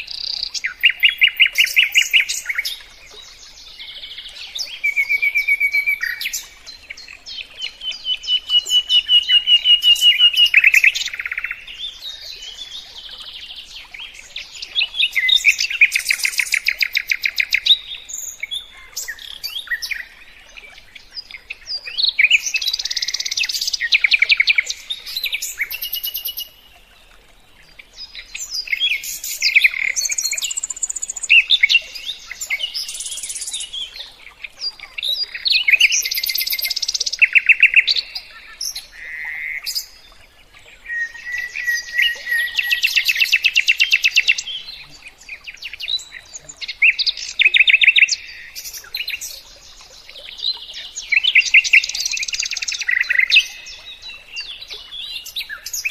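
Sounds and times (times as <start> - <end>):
songbird singing trills: 0.0 - 26.7, 27.6 - 55.9.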